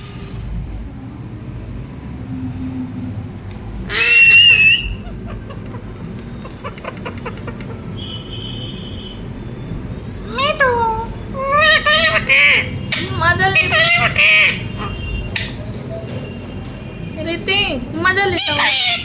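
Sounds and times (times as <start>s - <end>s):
parrot screeching: 3.9s - 5.2s, 10.2s - 15.5s, 18.2s - 19.0s.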